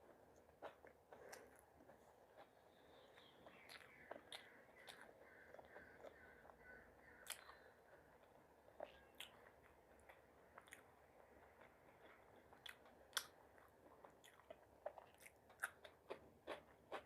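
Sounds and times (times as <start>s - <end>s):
chewing food: 0.0s - 17.0s.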